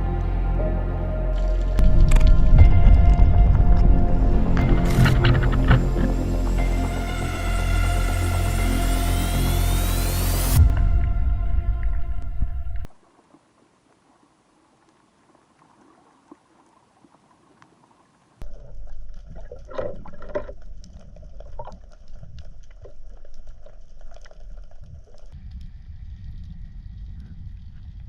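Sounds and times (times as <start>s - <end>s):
underwater rumble: 1.4s - 8.8s, 10.6s - 28.0s
small underwater clicks: 14.7s - 28.0s
bubbling gurgles: 18.4s - 25.4s.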